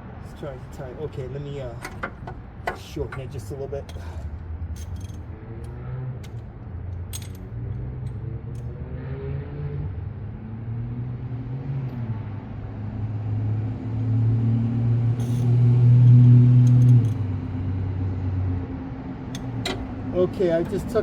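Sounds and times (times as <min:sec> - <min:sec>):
low engine-like hum: 0:00.0 - 0:21.0
brief metallic clicks: 0:16.6 - 0:17.2.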